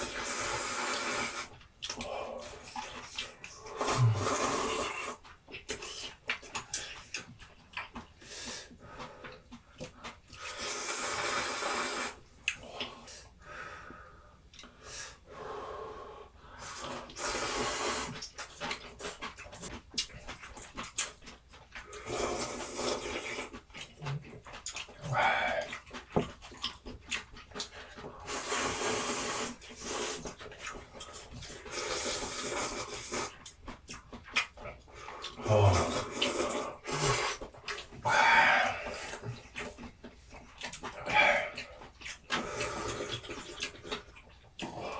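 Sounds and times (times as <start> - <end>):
noodle slurping: 0.0 - 7.2, 10.1 - 13.1, 16.6 - 44.9
wet chewing clicks: 0.2 - 13.4, 14.5 - 14.8, 16.6 - 44.9.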